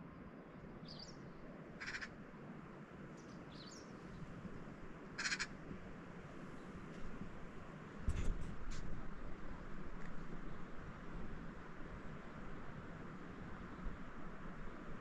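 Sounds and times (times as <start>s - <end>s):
harsh bird calls: 1.8s - 2.1s, 5.2s - 5.5s.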